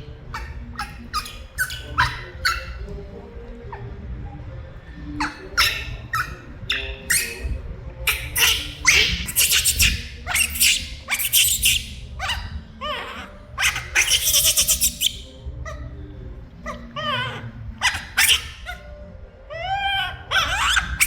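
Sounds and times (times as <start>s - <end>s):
baby monkey screeching: 0.3s - 2.9s, 5.2s - 15.9s, 16.6s - 21.0s
monkey coo calls: 5.2s - 15.9s, 16.6s - 21.0s.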